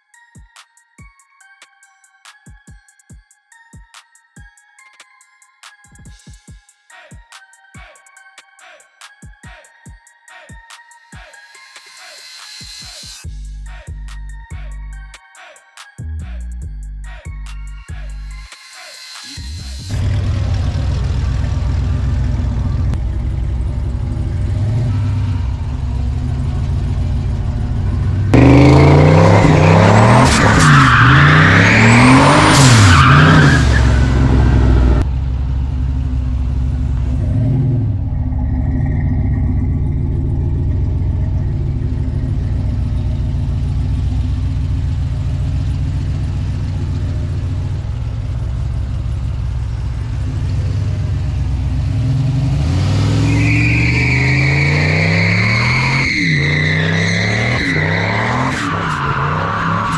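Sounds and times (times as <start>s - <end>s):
truck engine idling and revving: 13.2s - 15.2s, 19.6s - 59.9s
turbo whistle: 53.2s - 59.4s.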